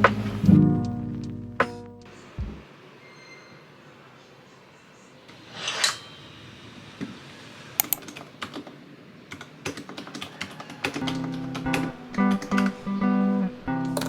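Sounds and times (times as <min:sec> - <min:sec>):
keyboard typing clicks: 0:07.8 - 0:08.6, 0:09.3 - 0:12.8.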